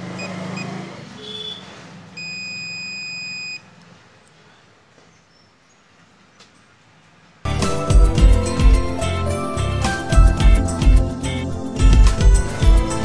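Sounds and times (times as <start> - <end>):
long steady beep: 2.2 - 3.6
short high beeps: 2.2 - 3.6.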